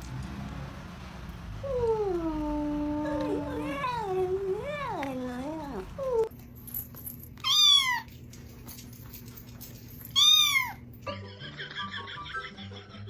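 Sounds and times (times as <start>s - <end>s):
cat meowing: 1.6s - 6.3s, 7.4s - 8.1s, 10.2s - 10.8s.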